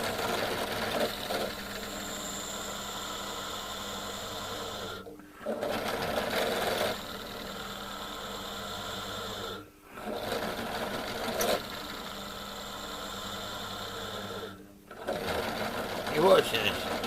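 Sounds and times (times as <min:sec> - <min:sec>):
drill press motor hum: 0:00.0 - 0:17.0.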